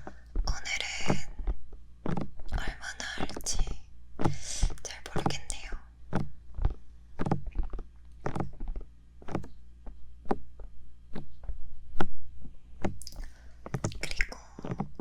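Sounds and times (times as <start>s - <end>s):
fingertips tapping on microphone: 0.0s - 15.0s
rubbing on microphone: 0.0s - 15.0s.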